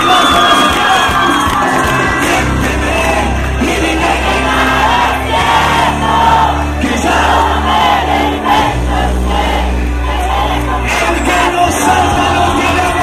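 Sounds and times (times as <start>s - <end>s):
crowd singing along: 0.0s - 13.0s
live band music: 0.0s - 13.0s.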